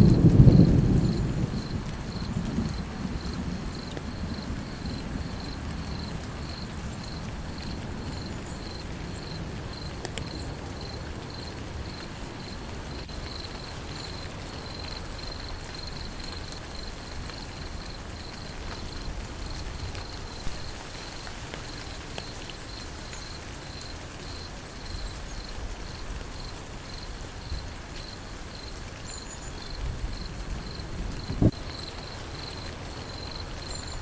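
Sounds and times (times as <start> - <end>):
low thunder rumble: 0.0 - 10.5, 29.7 - 31.7
insect chirping: 0.0 - 21.3, 26.4 - 34.0
rain hiss: 0.0 - 34.0.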